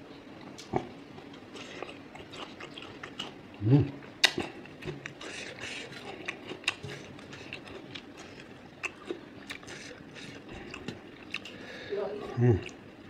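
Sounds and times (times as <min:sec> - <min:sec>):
chewing with wet clicks: 0:00.4 - 0:11.6, 0:12.6 - 0:12.9.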